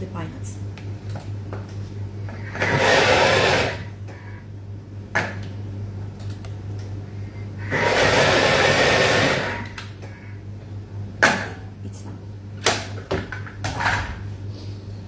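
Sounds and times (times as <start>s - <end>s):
electric blender bursts: 2.5s - 3.9s, 7.6s - 9.8s.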